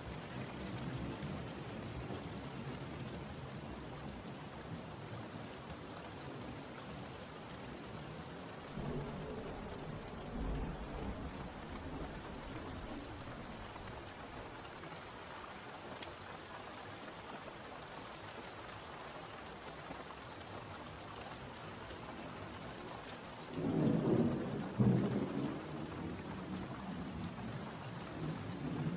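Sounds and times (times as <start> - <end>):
steady rain falling: 0.0 - 28.9
thunder rumbles: 8.6 - 14.8, 23.5 - 28.9.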